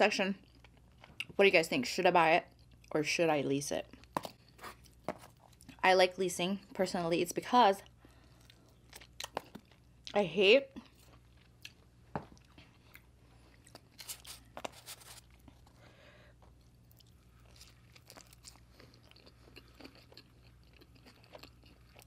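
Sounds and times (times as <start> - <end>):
quiet chewing: 7.8 - 10.2, 10.8 - 15.8, 16.4 - 22.0.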